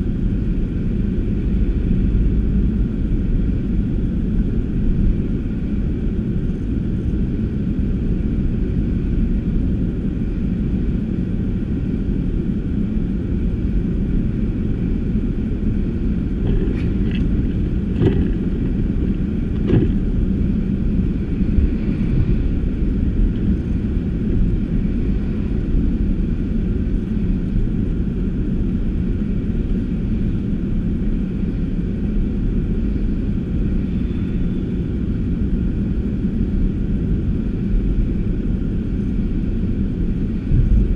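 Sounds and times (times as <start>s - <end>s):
car road and engine rumble: 0.0s - 40.9s
short knocks: 16.4s - 20.0s.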